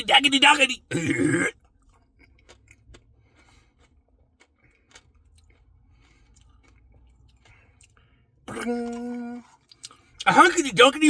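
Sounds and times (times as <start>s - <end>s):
chewing and wet mouth clicks: 1.6s - 10.3s.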